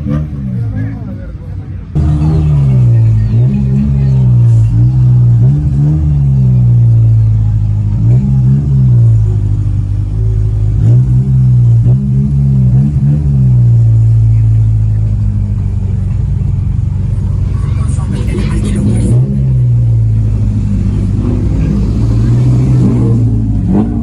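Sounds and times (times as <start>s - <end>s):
car engine idling: 0.0s - 24.0s
car engine revving: 0.0s - 24.0s.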